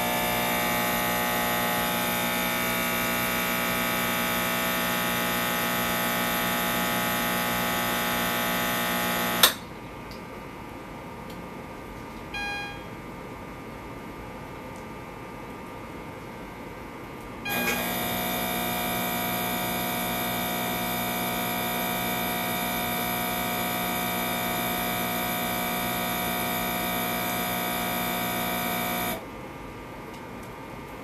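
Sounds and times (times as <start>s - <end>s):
buzzing motor hum: 0.0s - 9.6s, 12.3s - 13.1s, 17.5s - 29.3s.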